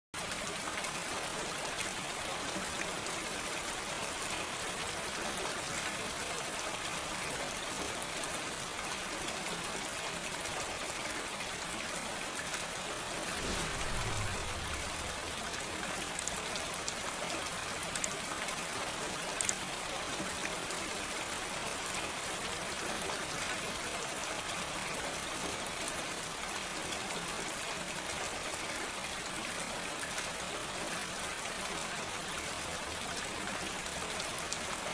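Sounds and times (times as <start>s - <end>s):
gentle rain falling: 0.2s - 34.9s
low rumble dropping in pitch: 13.3s - 16.0s.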